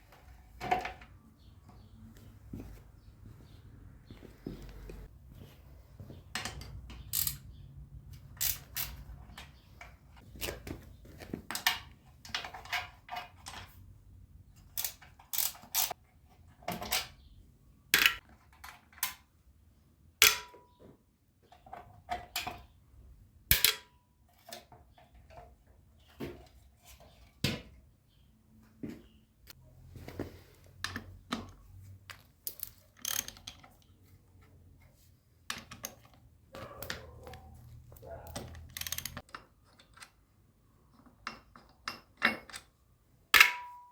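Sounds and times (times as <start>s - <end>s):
metal tools clinking: 6.4s - 7.6s, 35.5s - 40.2s.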